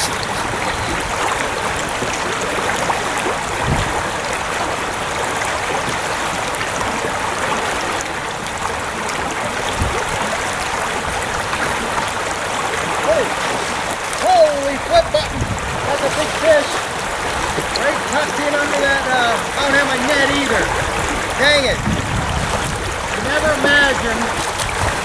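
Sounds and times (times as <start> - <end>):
river current rushing: 0.0 - 25.0
dull low thumps: 14.9 - 17.8, 20.6 - 25.0.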